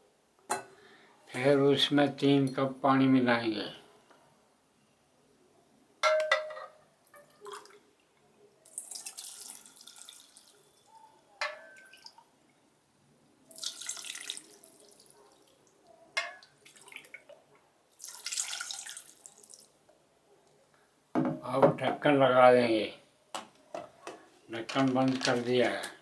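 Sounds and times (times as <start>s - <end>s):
water pouring into bowl: 8.7s - 10.7s, 13.5s - 15.1s, 16.6s - 17.3s, 18.0s - 19.7s.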